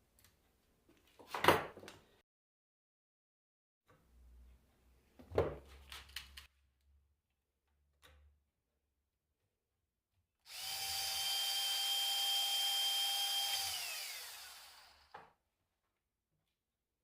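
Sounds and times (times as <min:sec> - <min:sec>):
power drill whining: 0:10.5 - 0:15.2.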